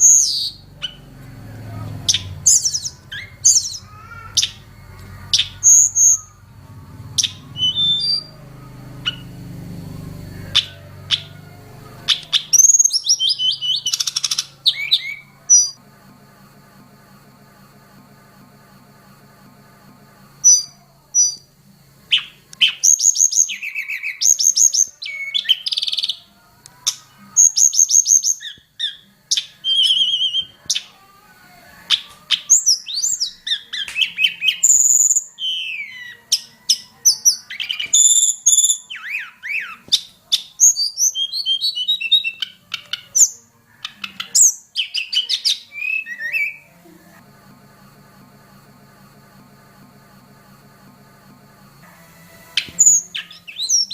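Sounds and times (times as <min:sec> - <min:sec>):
bird singing whistles and trills: 0:00.0 - 0:01.1, 0:02.0 - 0:09.5, 0:10.5 - 0:15.8, 0:20.4 - 0:21.5, 0:22.1 - 0:31.0, 0:31.9 - 0:46.7, 0:52.6 - 0:53.9
low buzzing hum: 0:00.0 - 0:24.2, 0:46.6 - 0:53.9.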